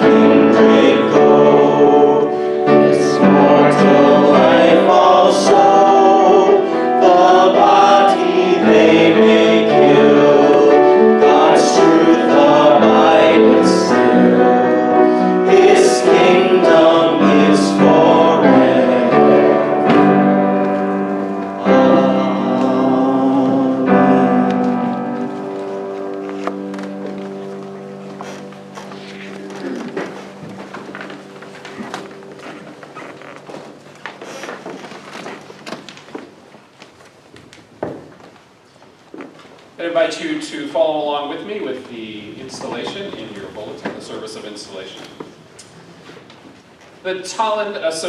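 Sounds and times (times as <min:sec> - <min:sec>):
choir singing a hymn: 0:00.0 - 0:33.1
piano accompaniment: 0:00.0 - 0:39.1, 0:39.7 - 0:48.0.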